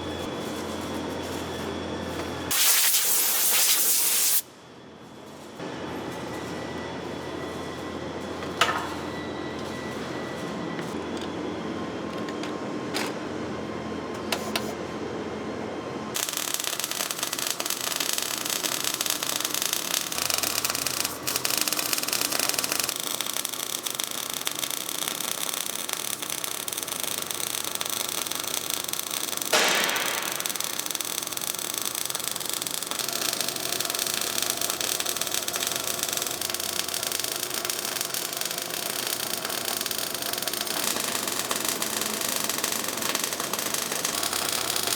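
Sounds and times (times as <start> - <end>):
welding arc hissing: 2.5 - 4.5, 16.2 - 44.9
sharp crack: 29.5 - 31.3.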